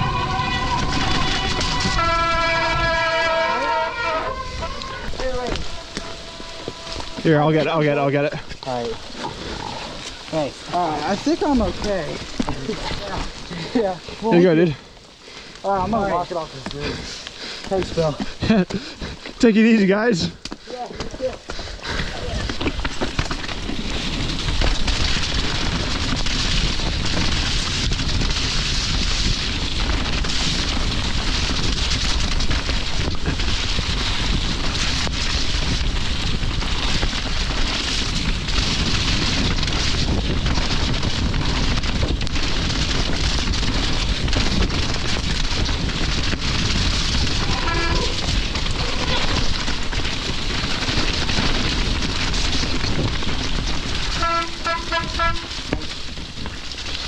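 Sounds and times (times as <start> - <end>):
wind on microphone: 0.0 - 7.5, 23.6 - 57.0
tyres over mud and rock: 4.6 - 57.0
bike knocks and rattles: 22.3 - 57.0.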